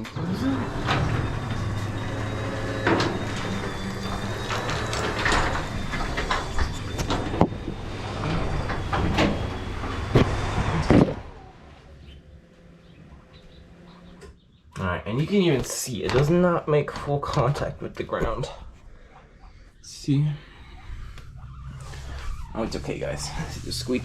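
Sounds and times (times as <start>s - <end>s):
garage door opener motor hum: 0.0s - 14.5s.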